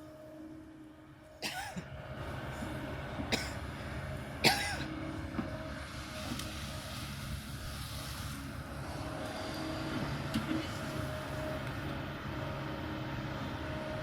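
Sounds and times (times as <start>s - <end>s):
excavator engine running: 0.0s - 14.0s.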